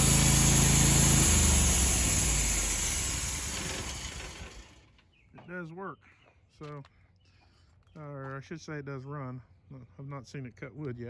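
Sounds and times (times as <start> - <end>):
sawmill pulleys and blade coasting: 0.0 - 4.8
small gasoline engine running: 0.0 - 4.9.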